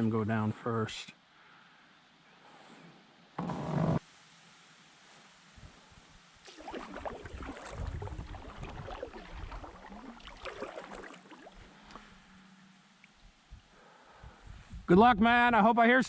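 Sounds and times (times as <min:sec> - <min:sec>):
water splashing against boat hull: 0:06.4 - 0:12.1.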